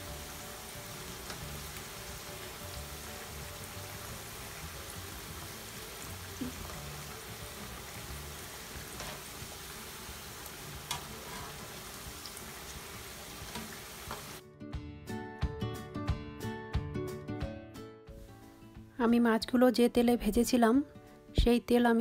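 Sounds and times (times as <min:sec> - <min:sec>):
oil sizzling: 0:00.0 - 0:14.4
background music: 0:00.0 - 0:22.0.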